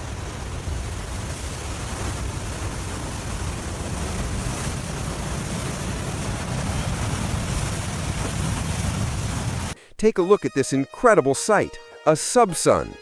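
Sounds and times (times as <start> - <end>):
river water rushing with ice: 0.0 - 9.8.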